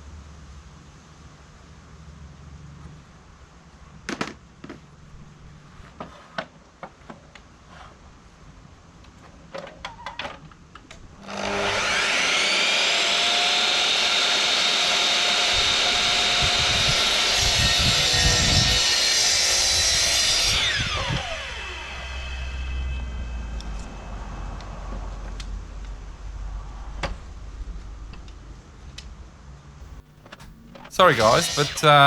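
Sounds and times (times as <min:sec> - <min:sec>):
power tool whining: 0:11.2 - 0:21.0, 0:30.4 - 0:32.0
tool cutting grooves in wood: 0:31.1 - 0:31.8.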